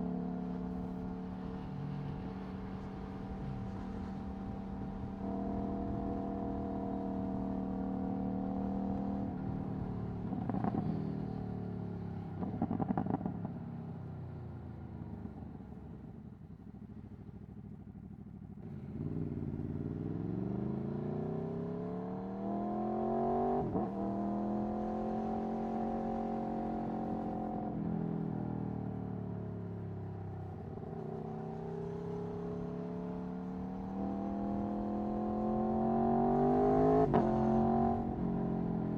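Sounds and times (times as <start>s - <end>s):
motorcycle engine revving: 18.6s - 27.7s, 30.7s - 38.9s.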